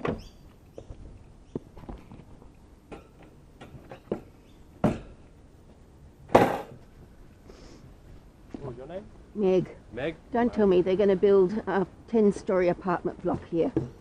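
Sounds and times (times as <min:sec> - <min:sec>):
knocks and clunks: 0:02.9 - 0:05.3, 0:06.3 - 0:06.9.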